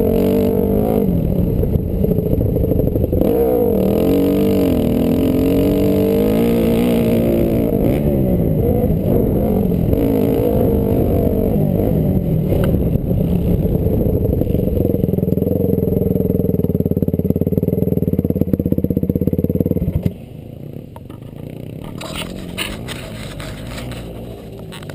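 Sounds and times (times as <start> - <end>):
dirt bike engine revving: 0.0 - 16.0, 21.4 - 24.9.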